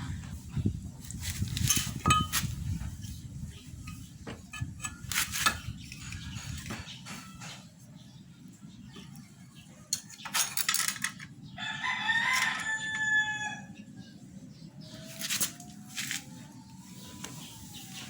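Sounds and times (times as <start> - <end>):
scraping or rattling noises: 0.5 - 7.8
rooster crowing: 11.6 - 13.8.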